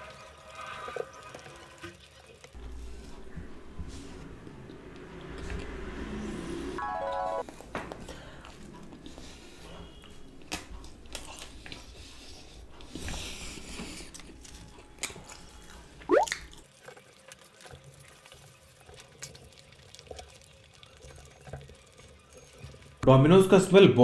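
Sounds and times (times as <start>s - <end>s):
wet chewing with mouth clicks: 7.9s - 22.6s.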